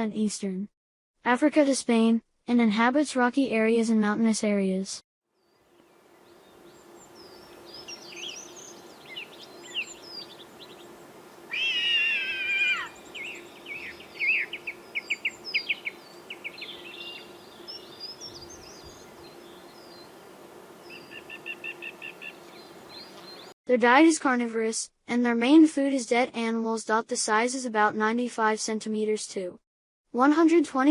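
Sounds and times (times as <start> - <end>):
birds chirping and trilling: 5.4 - 23.6
long wavering bird call: 5.6 - 20.1, 20.8 - 23.5.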